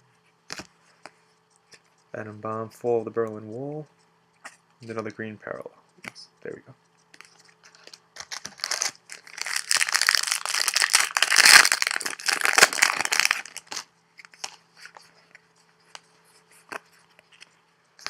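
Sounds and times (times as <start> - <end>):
wrapper tearing and crinkling: 7.7 - 14.6.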